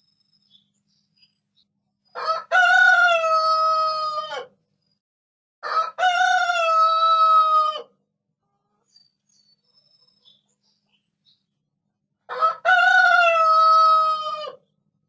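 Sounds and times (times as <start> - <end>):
rooster crowing: 2.1 - 4.5, 5.6 - 7.9, 12.3 - 14.6.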